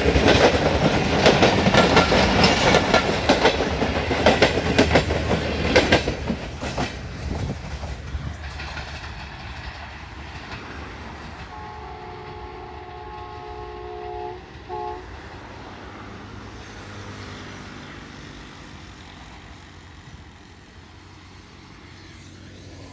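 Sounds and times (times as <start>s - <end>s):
train wheels clattering: 0.0s - 13.7s
distant locomotive horn: 11.4s - 16.2s.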